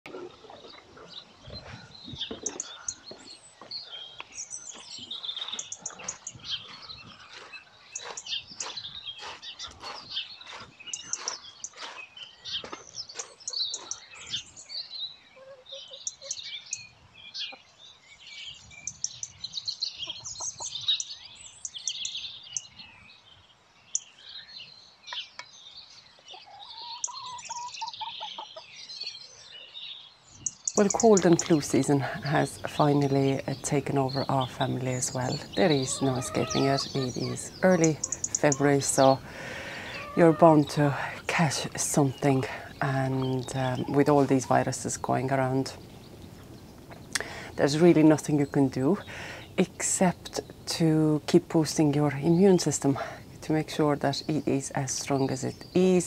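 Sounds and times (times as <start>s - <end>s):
small birds chirping and singing: 0.0s - 56.0s
hen calling: 26.4s - 28.7s, 30.8s - 56.0s.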